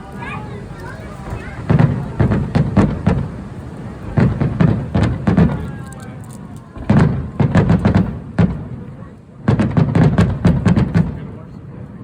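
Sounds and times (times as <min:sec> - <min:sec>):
fireworks bangs: 0:00.0 - 0:12.0
low rumbling echo: 0:00.0 - 0:12.0.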